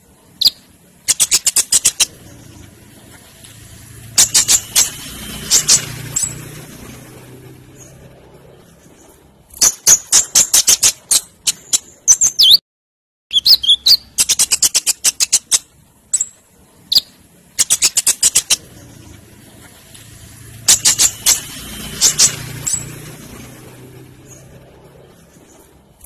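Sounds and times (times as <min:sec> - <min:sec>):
sunbird singing metallic chips: 0:00.4 - 0:03.5, 0:04.1 - 0:12.6, 0:13.3 - 0:20.0, 0:20.6 - 0:25.8
whistled slurs: 0:13.3 - 0:15.6.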